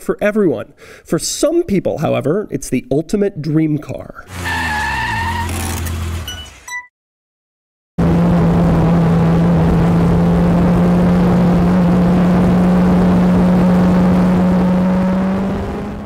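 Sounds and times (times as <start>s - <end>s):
car engine revving high: 4.3s - 6.3s, 8.0s - 16.0s.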